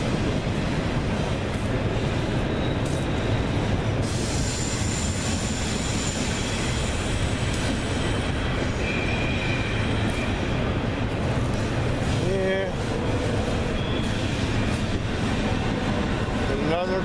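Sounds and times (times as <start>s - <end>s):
rail cars rumbling on track: 0.0s - 17.0s
high-pitched wheel squeal: 4.0s - 10.7s, 13.6s - 14.6s.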